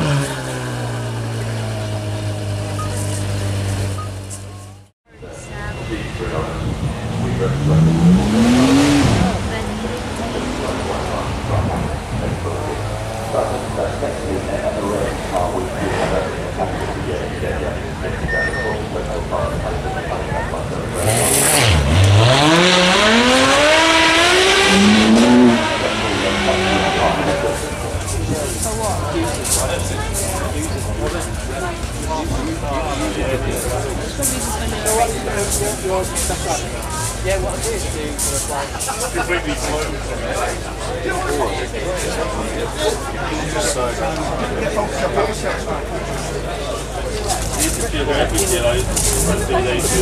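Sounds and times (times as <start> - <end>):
car engine accelerating hard: 0.0 - 4.7, 6.2 - 38.6
car engine idling: 0.0 - 4.9.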